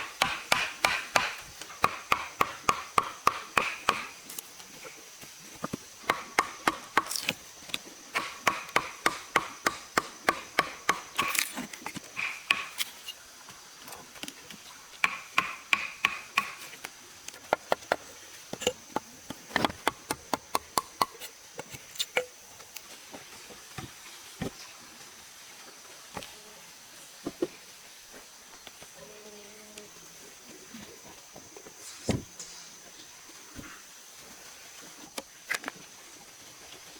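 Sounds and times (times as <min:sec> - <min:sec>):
rapid chopping strikes: 0:00.0 - 0:04.2, 0:06.0 - 0:07.3, 0:08.2 - 0:11.5, 0:12.2 - 0:12.8, 0:15.0 - 0:16.6
high insect drone: 0:00.0 - 0:23.3, 0:28.1 - 0:35.1.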